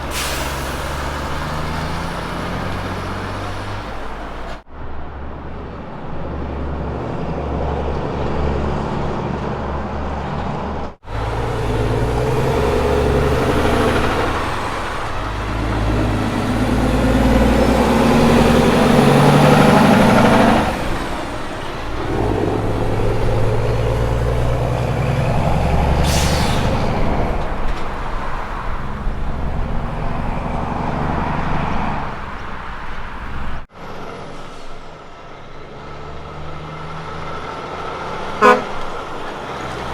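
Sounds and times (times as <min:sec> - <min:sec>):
sharp hiss of air: 0:00.0 - 0:01.5
heavy diesel engines working: 0:00.0 - 0:39.9.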